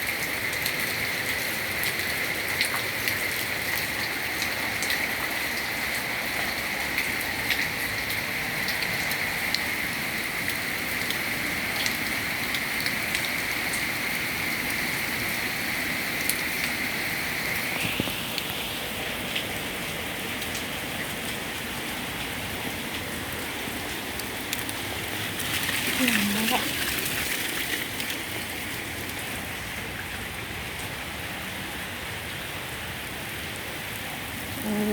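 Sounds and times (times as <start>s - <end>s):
raindrops tapping: 0.0s - 14.0s, 17.7s - 31.0s
heavy rain hissing: 13.4s - 20.2s, 22.4s - 34.9s.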